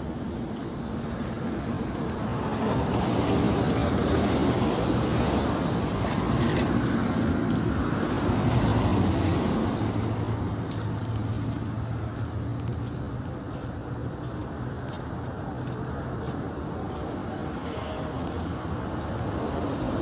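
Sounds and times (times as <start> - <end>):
road noise: 0.0 - 20.0.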